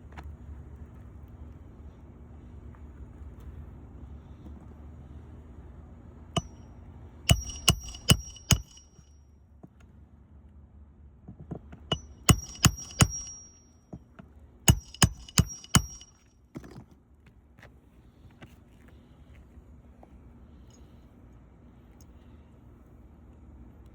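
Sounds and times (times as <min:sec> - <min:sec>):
hammer driving nails into shingles: 0:07.3 - 0:09.0, 0:11.9 - 0:13.6, 0:14.7 - 0:16.7.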